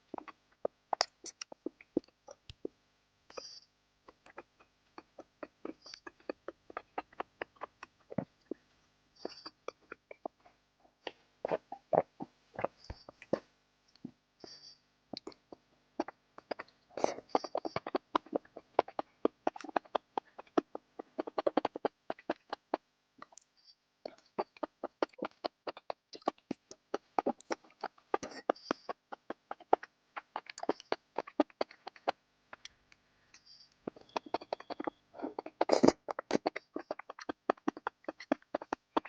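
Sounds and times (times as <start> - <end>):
wet chewing and mouth smacking: 0.1 - 2.7, 4.1 - 8.6, 15.1 - 23.5, 24.1 - 32.8, 33.4 - 39.0.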